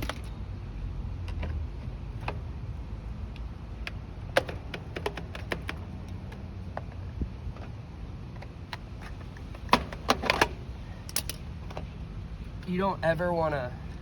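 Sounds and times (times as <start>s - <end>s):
low steady rumble: 0.0s - 14.0s
metal parts clanking: 9.0s - 11.8s
hand tools clicking and clinking: 9.0s - 11.9s.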